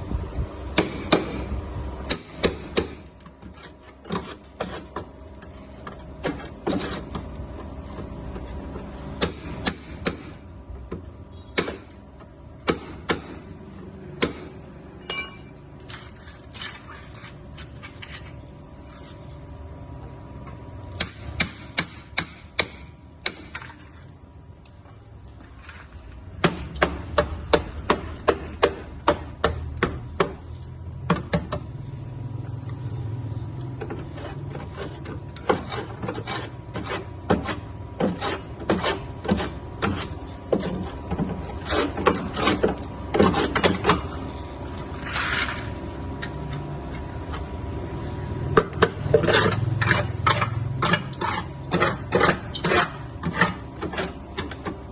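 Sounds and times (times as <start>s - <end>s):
hand tool rasping strokes: 33.8s - 44.0s, 49.0s - 54.6s.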